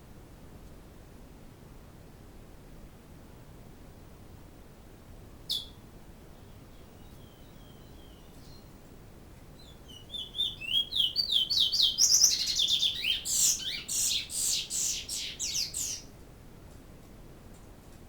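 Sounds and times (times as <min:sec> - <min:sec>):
bird chirping: 0:05.5 - 0:08.7, 0:09.6 - 0:16.1.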